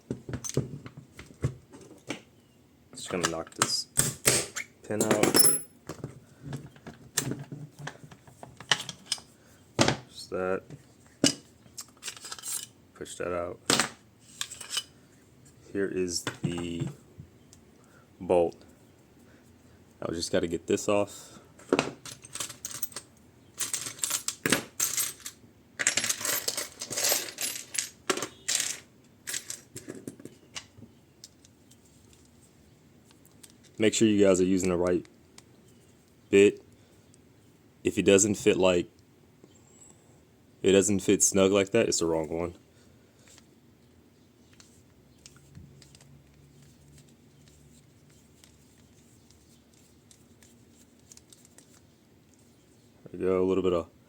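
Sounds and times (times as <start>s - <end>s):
metal gun parts clinking: 5.0s - 5.8s, 11.2s - 12.8s, 13.7s - 14.9s
clicks and scrapes of metal parts: 6.8s - 9.4s, 11.2s - 12.8s, 13.8s - 15.0s.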